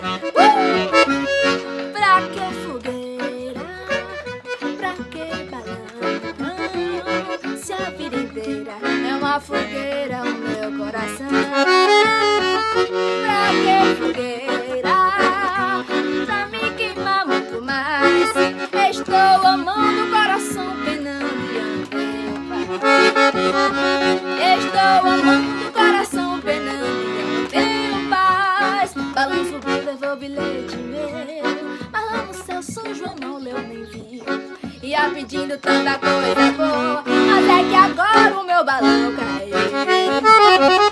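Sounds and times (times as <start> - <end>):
accordion melody: 0.0 - 40.9.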